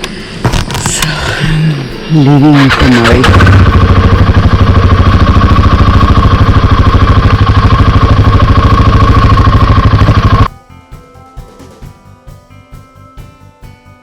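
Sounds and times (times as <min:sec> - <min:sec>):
motorcycle engine running low revs: 0:02.2 - 0:10.5.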